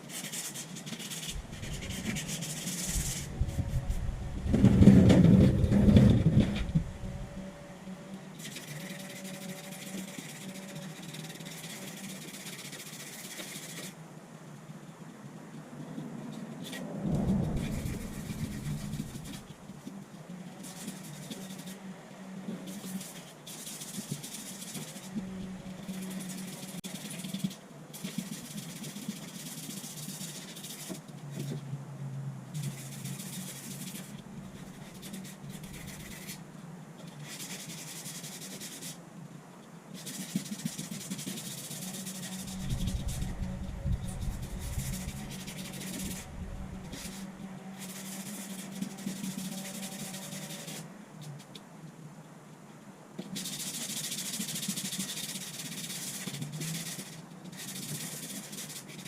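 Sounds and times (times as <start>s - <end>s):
sanding rubbing hiss: 0.0s - 4.6s, 40.0s - 50.9s
low bump: 1.3s - 7.7s, 17.0s - 19.6s.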